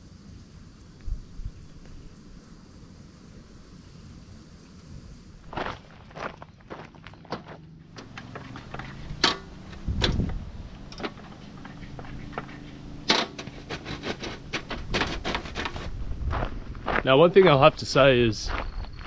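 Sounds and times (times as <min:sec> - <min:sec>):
footsteps on dry trail: 0:05.4 - 0:19.0.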